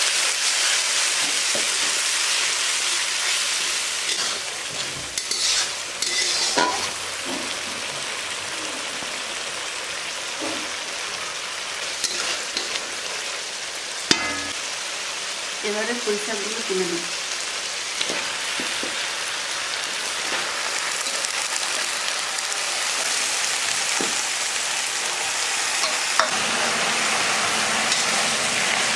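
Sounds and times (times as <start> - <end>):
paste frying in oil: 0.0 - 28.9.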